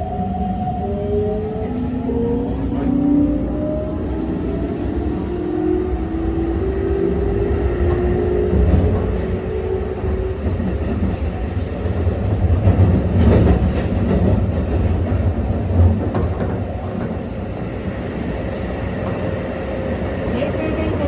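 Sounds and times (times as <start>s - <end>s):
wheel and rail rumble: 0.0s - 21.0s.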